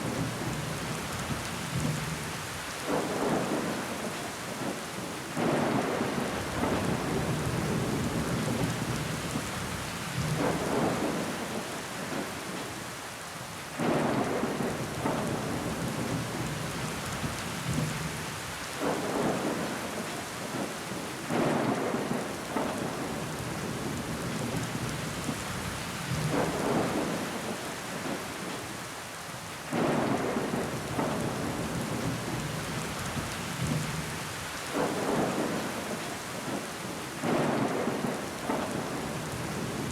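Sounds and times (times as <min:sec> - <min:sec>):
rain pattering on window glass: 0:00.0 - 0:12.8, 0:13.6 - 0:28.8, 0:29.8 - 0:39.9
water running down a window: 0:00.0 - 0:21.8, 0:30.1 - 0:39.9.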